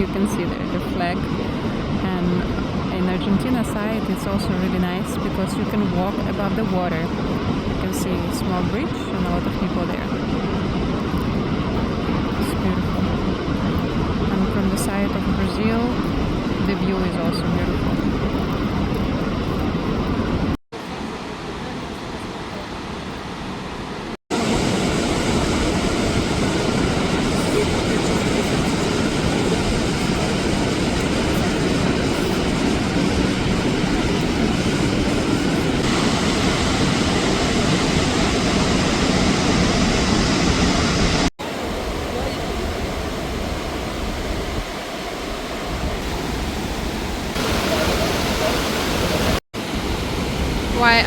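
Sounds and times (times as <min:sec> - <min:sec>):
waterfall roaring: 0:00.0 - 0:51.0.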